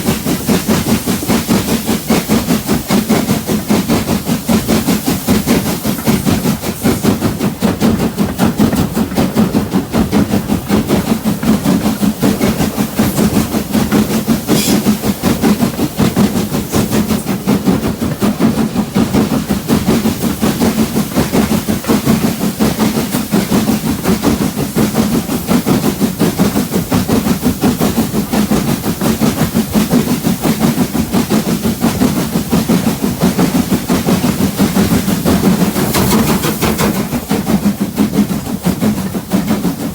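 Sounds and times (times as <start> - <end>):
train wheels clattering: 0.0 - 39.9.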